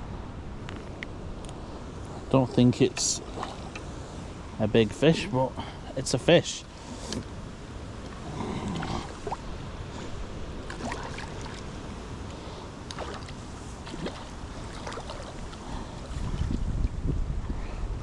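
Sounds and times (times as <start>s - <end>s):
wind buffeting microphone: 13.0s - 18.0s.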